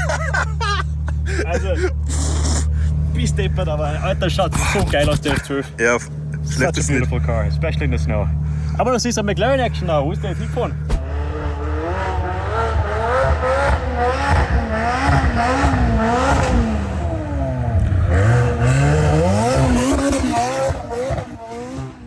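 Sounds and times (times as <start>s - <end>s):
sports car engine revving: 10.2s - 22.0s.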